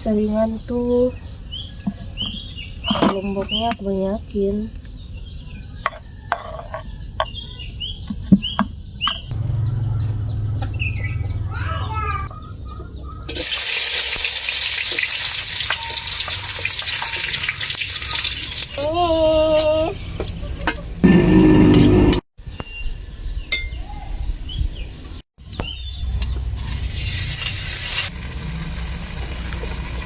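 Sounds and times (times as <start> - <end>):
food sizzling in hot oil: 13.3 - 19.0, 26.4 - 30.0.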